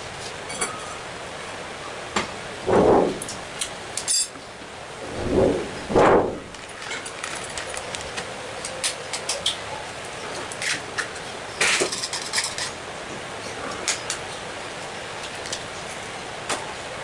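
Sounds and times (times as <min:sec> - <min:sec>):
utensils clinking on cookware: 0:04.0 - 0:04.4.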